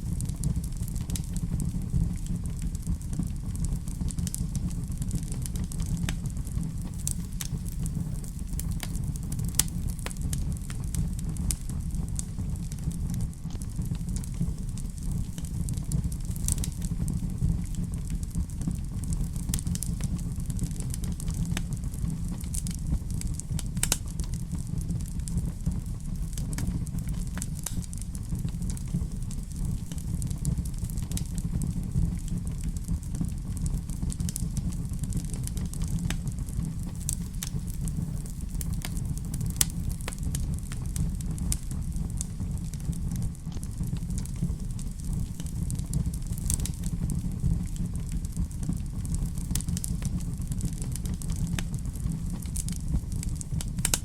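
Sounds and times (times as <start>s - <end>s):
fire crackling: 0.0s - 54.0s
flames rumbling: 0.0s - 54.0s.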